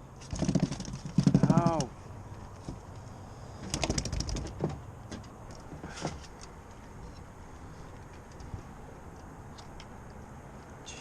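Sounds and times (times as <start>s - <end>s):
fish slapping and knocking: 0.2s - 1.9s, 3.6s - 4.8s.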